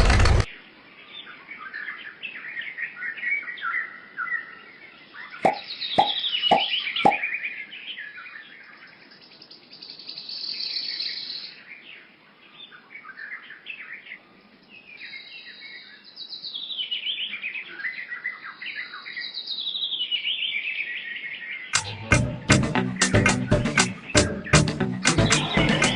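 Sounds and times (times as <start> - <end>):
small birds chirping and twittering: 0.5 - 22.1.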